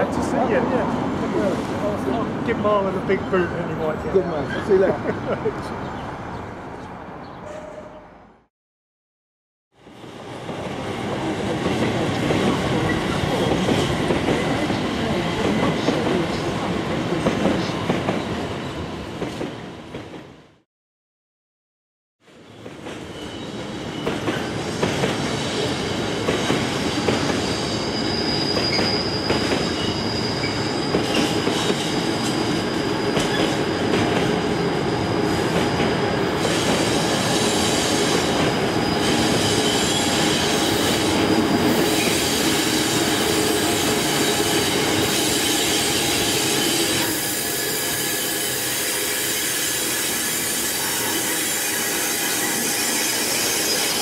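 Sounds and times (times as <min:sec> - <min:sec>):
high thin wheel squeal: 0:26.8 - 0:33.6, 0:34.6 - 0:54.0.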